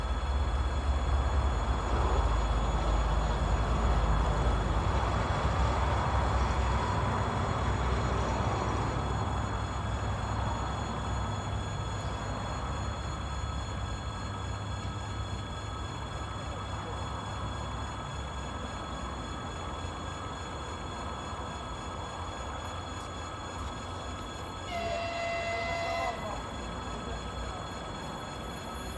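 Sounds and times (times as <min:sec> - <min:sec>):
passenger train passing: 0:00.0 - 0:28.9
train horn: 0:24.6 - 0:26.8.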